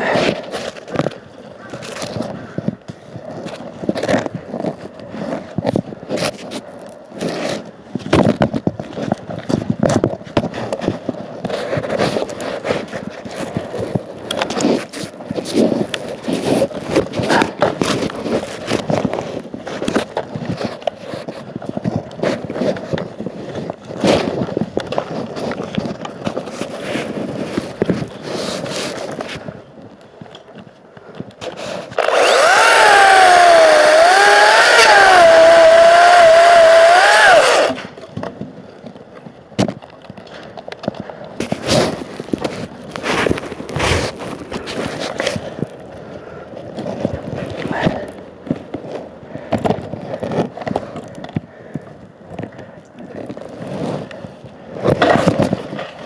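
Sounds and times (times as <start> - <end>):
wood scraping and rubbing: 31.4 - 38.0, 41.4 - 45.7
electric chainsaw whining: 32.0 - 37.9.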